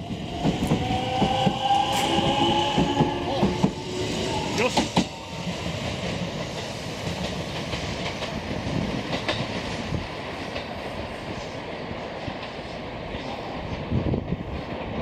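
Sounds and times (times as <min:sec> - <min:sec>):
electric train running: 0:00.0 - 0:10.0.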